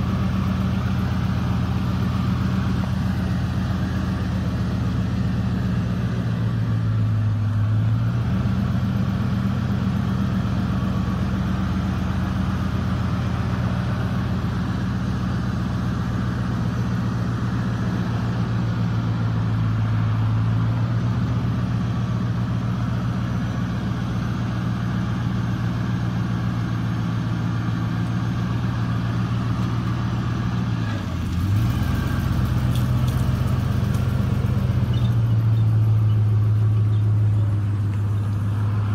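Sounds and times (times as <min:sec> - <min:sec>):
pickup engine idling: 0:00.0 - 0:38.9.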